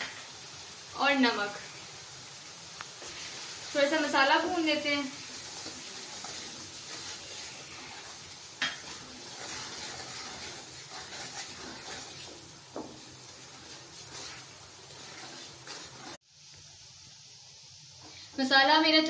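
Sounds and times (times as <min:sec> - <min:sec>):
spices sizzling in hot oil: 0:00.0 - 0:19.0
wooden spatula stirring: 0:03.0 - 0:16.2.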